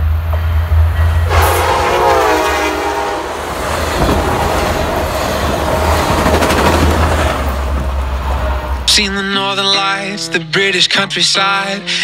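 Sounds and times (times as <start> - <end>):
train rumble: 0.0 - 9.3
train horn chord: 0.4 - 4.9
train wheel clatter: 3.3 - 8.8.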